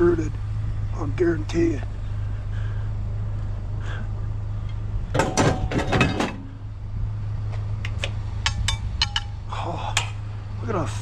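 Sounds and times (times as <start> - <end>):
low hum: 0.0 - 11.0
vehicle engine idling: 0.0 - 11.0
scrap metal clattering: 5.1 - 6.6.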